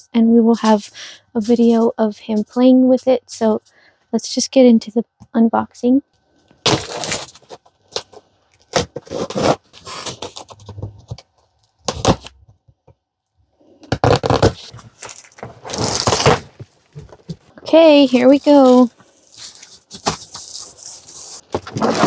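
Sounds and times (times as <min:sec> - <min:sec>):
cardboard packaging scraping and rustling: 0:06.6 - 0:12.4, 0:13.7 - 0:22.0.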